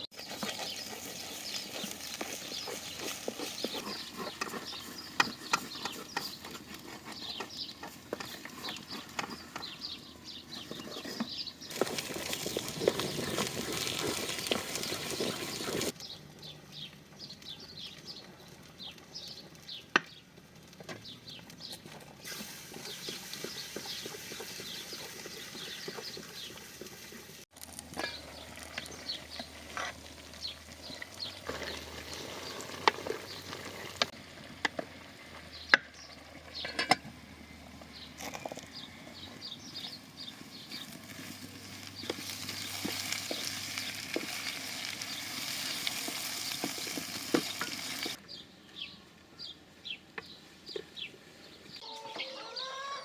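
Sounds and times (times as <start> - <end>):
outdoor background noise: 0.0 - 53.0
farm animals calling: 0.2 - 15.9, 51.8 - 53.0.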